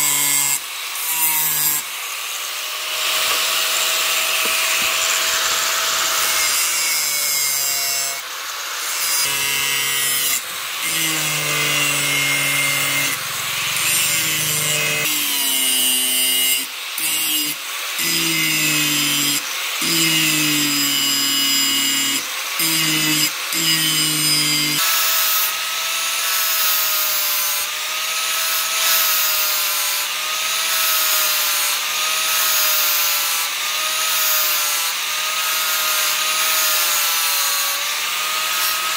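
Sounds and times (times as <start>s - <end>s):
power tool rasping on steel: 0.0s - 38.9s.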